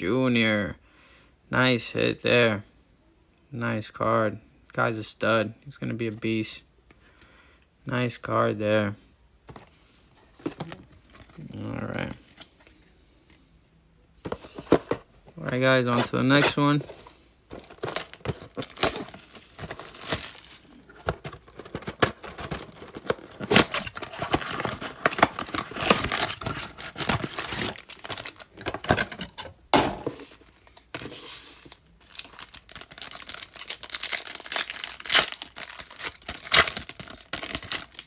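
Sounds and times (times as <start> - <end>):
wrappers crinkling: 15.4 - 29.4, 30.0 - 38.0
plastic and foil wrappers tearing: 15.4 - 38.0.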